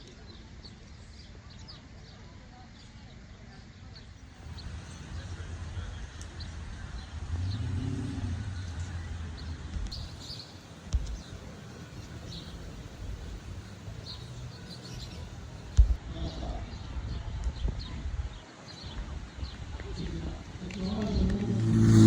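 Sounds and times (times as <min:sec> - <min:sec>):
small birds chirping: 0:08.6 - 0:22.0
steady low rumble: 0:20.2 - 0:22.0.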